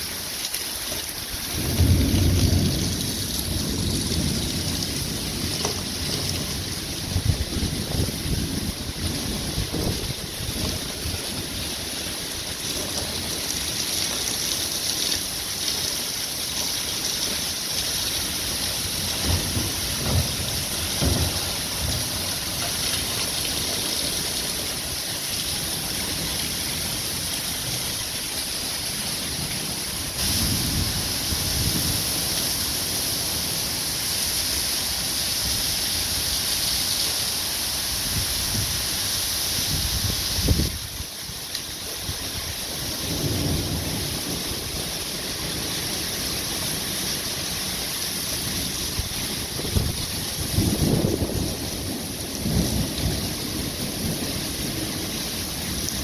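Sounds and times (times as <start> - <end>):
heavy rain falling: 0.0 - 56.0
wind gusts buffeting microphone: 1.5 - 11.6, 38.0 - 41.1, 49.0 - 53.0.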